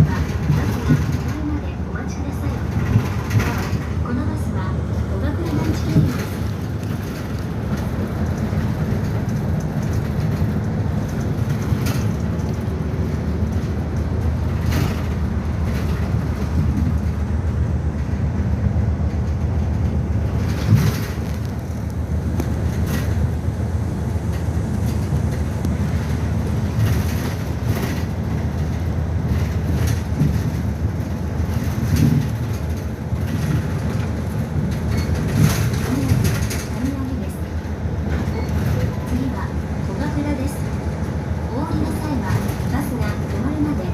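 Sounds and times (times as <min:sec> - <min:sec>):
knocks and rattles: 0:00.0 - 0:01.7, 0:02.4 - 0:04.2, 0:05.4 - 0:17.3, 0:19.0 - 0:23.3, 0:24.3 - 0:37.3
bus engine and road rumble: 0:00.0 - 0:43.9.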